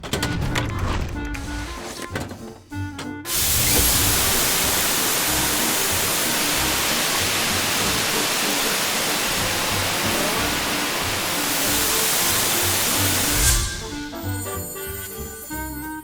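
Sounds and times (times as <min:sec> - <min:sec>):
background music: 0:00.0 - 0:16.0
high-pressure water spray hissing: 0:03.3 - 0:15.1.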